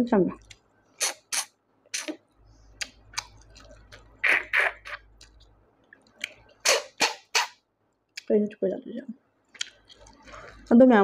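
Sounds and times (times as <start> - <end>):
person chewing and sucking: 0.4 - 7.5, 9.5 - 10.7.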